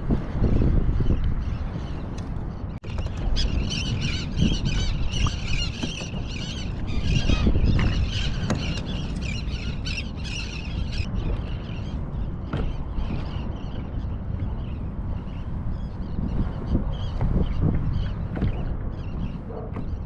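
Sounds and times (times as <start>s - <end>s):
steady low rumble: 0.0s - 20.0s
birds chirping squeakily: 2.8s - 16.2s.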